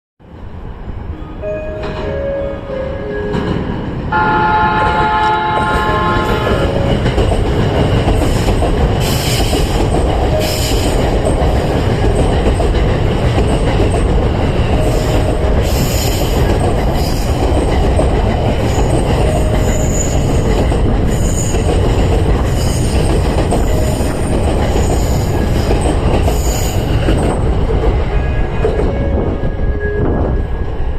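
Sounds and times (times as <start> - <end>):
train wheels rumbling on rails: 1.7 - 30.9
train horn: 4.1 - 7.0.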